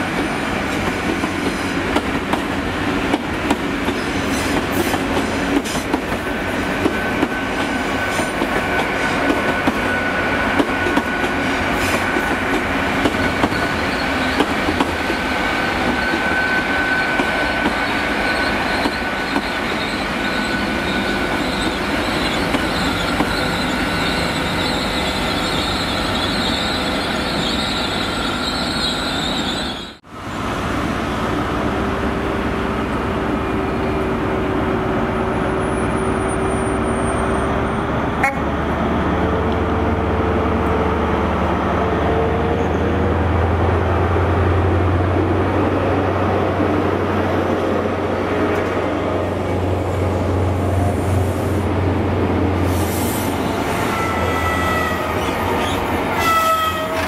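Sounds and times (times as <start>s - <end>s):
train running past: 0.0s - 57.0s
thin squeals of train coaches: 3.9s - 12.4s, 13.0s - 30.0s, 35.4s - 38.0s, 42.5s - 43.0s, 52.6s - 57.0s.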